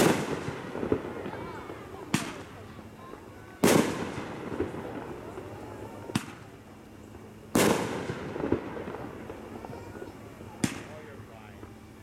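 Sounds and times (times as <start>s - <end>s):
fireworks bangs: 0.0s - 6.6s, 7.2s - 11.7s
faint fireworks pops: 0.0s - 11.8s.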